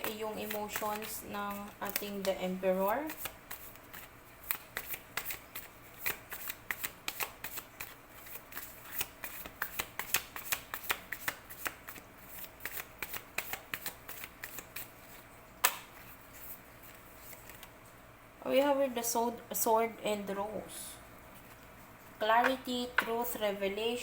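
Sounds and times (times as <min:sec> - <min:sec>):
cards being shuffled: 0:00.0 - 0:17.8
card snap: 0:15.6 - 0:16.0.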